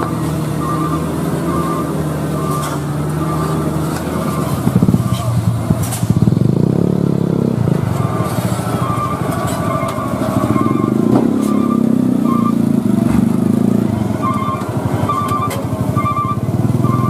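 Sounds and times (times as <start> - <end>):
short high-pitched tones: 0.0 - 5.4, 14.2 - 17.0
vehicle engine rumbling: 0.0 - 17.0.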